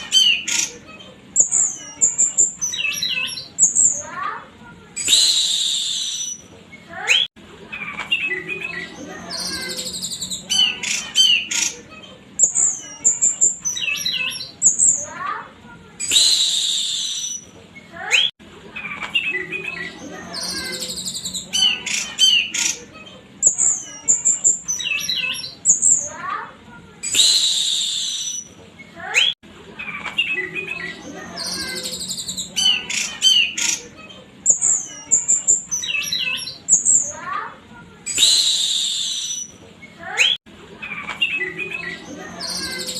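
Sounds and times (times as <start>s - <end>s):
bird singing whistled song: 5.0s - 6.5s, 8.1s - 11.6s, 16.0s - 17.5s, 20.4s - 22.7s, 27.0s - 28.6s, 38.1s - 39.6s.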